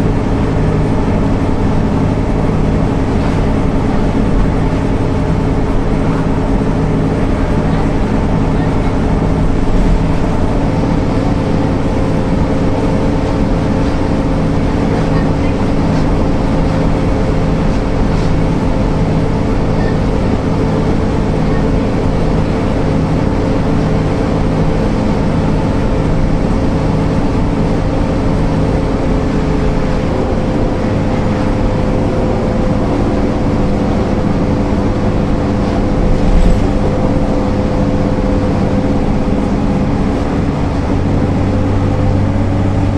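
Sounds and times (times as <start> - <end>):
bus diesel engine running: 0.0 - 42.9.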